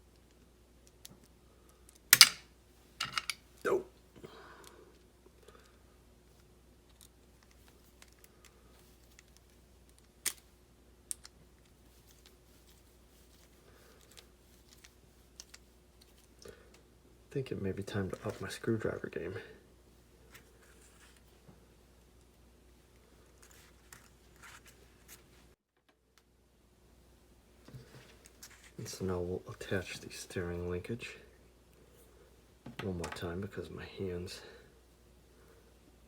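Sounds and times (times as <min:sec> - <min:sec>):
plastic parts clicking and tapping: 0:03.0 - 0:03.4.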